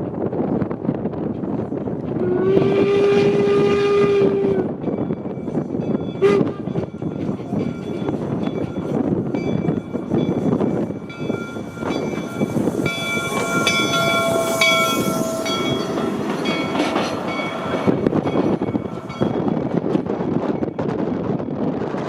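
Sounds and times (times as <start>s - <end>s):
locomotive noise: 0.1s - 22.0s
steam locomotive bell ringing: 4.6s - 21.7s.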